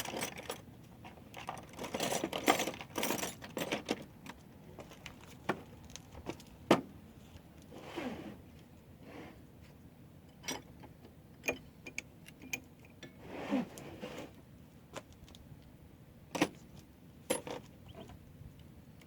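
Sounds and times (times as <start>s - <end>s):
hand tools clinking on metal: 1.3s - 4.1s.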